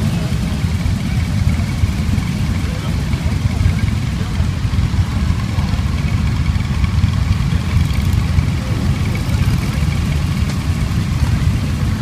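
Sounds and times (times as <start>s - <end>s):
motorcycle engines idling: 0.0s - 12.0s.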